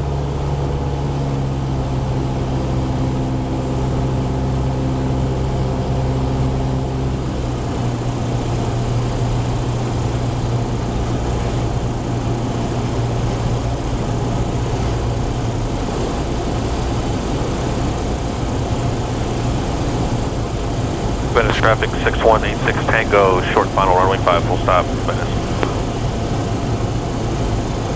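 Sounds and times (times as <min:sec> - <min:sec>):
propeller plane engine drone: 0:21.0 - 0:27.9.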